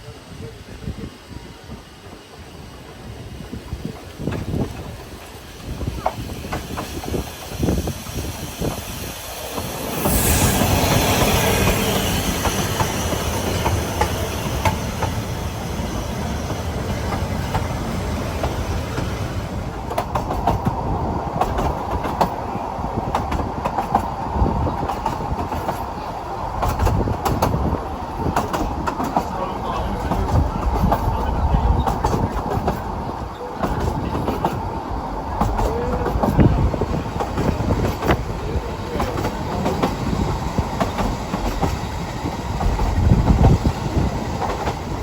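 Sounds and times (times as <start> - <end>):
train running on rails: 0.0 - 45.0
wheel squeal: 6.1 - 17.3
wheels clicking over rail joints: 11.0 - 45.0.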